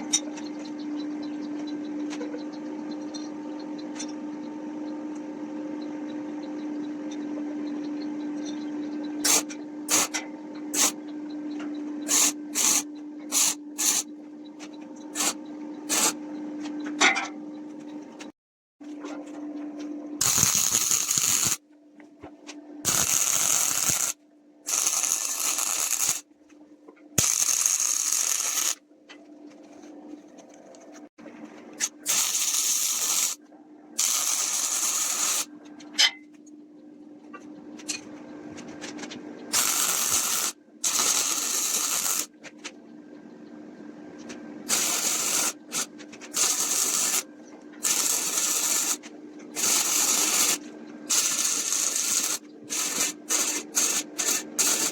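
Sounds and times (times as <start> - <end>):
sander hissing on wood: 44.7 - 47.2, 47.8 - 49.0, 49.6 - 54.9.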